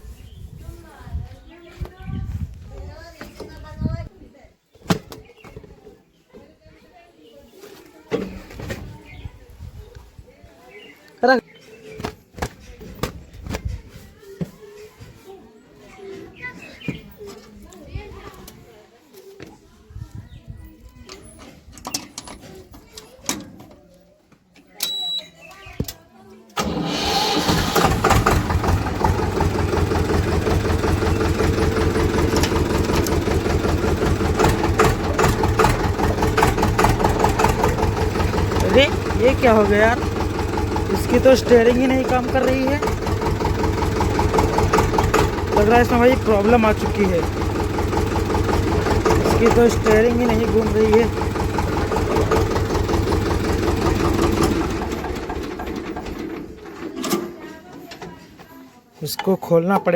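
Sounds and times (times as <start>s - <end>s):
tractor engine idling: 26.6s - 57.5s.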